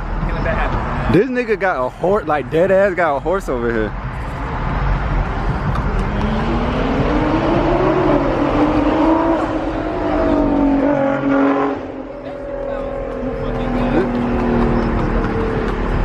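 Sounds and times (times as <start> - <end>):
car engine revving: 4.0 - 16.0.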